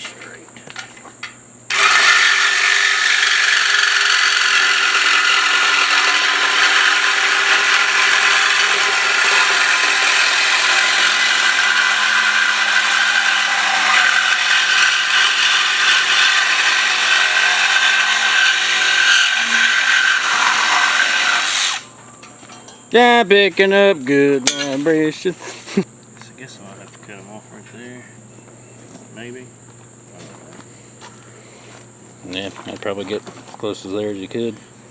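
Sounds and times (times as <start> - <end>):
reciprocating saw cutting metal pipe: 1.7 - 23.2, 24.4 - 25.0.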